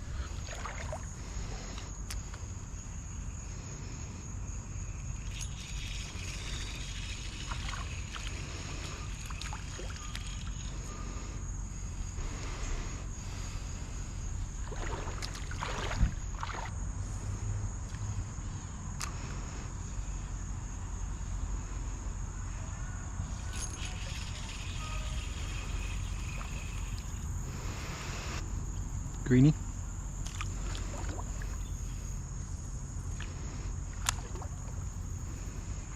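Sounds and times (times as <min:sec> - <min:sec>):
insects droning: 0:00.0 - 0:35.9
creek water sloshing: 0:00.2 - 0:01.5, 0:05.6 - 0:10.8, 0:14.2 - 0:16.8, 0:23.7 - 0:29.0, 0:30.2 - 0:31.9, 0:33.1 - 0:34.9
water splashing: 0:00.4 - 0:01.1, 0:14.6 - 0:16.7, 0:30.2 - 0:31.6.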